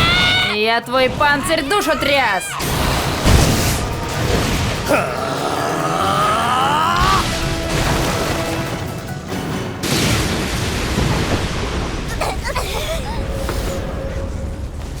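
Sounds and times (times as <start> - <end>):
battle music: 0.0 - 12.0
booming impact effects: 2.6 - 12.5.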